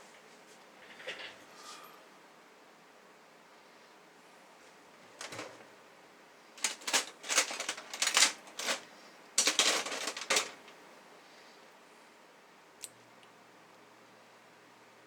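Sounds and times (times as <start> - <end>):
small hard parts clattering: 5.1 - 5.7, 6.6 - 10.8.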